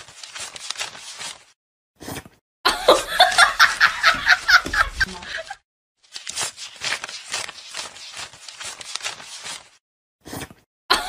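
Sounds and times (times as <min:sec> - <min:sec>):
person laughing: 0:02.7 - 0:05.6.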